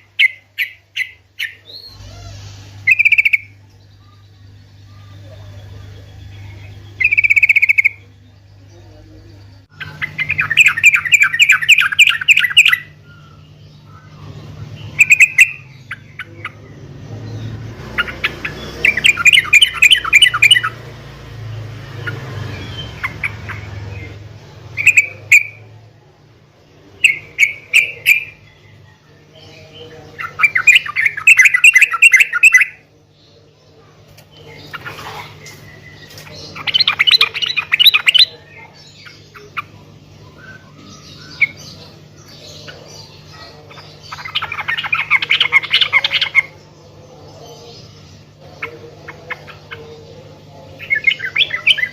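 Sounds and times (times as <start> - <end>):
bird bubbling chattering song: 0.0 - 8.6, 9.5 - 16.6, 34.2 - 46.6
faint low hum: 0.0 - 51.9
quieter bird calls: 0.0 - 51.9.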